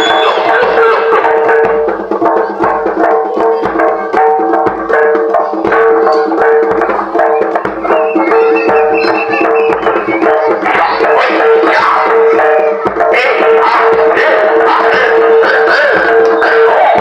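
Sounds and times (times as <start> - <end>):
held tone: 0.0 - 1.6, 7.4 - 10.6
pitched metal notes: 0.0 - 17.0
rapid hand-drum strikes: 0.0 - 17.0.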